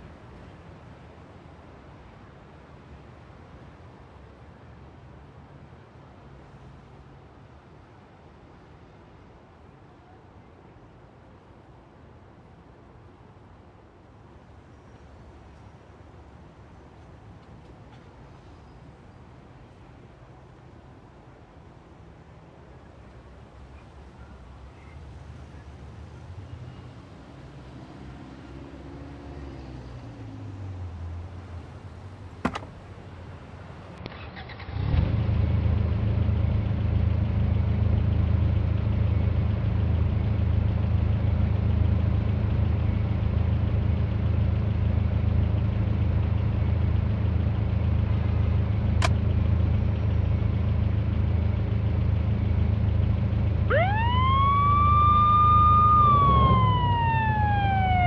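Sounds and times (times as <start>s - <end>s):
vehicle engine starting and running: 32.3s - 33.2s
siren wailing: 53.7s - 58.0s.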